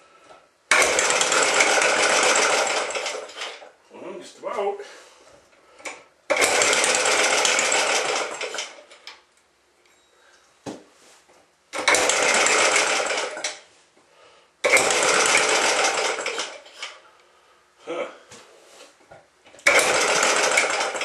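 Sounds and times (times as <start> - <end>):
small gas engine cranking: 0.7 - 3.7, 5.9 - 9.0, 11.8 - 13.6, 14.6 - 17.0, 19.6 - 21.0.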